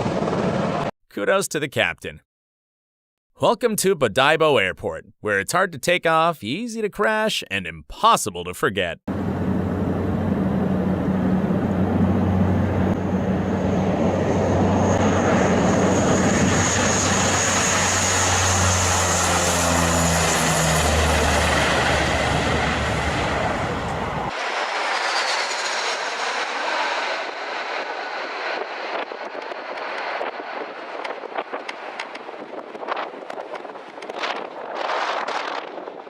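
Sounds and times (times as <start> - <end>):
aircraft engines high whine: 0.0 - 0.9, 9.1 - 36.0
aircraft engines low hum: 0.0 - 0.9, 9.1 - 36.0.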